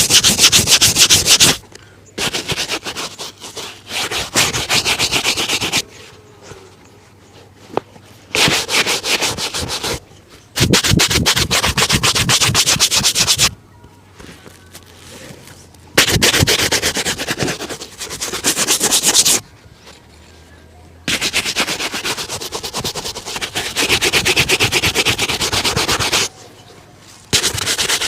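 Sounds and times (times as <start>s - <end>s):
shoe being brushed: 0.0s - 1.6s, 2.2s - 6.2s, 7.6s - 10.0s, 10.6s - 13.5s, 16.0s - 19.4s, 21.1s - 26.3s, 27.3s - 28.0s.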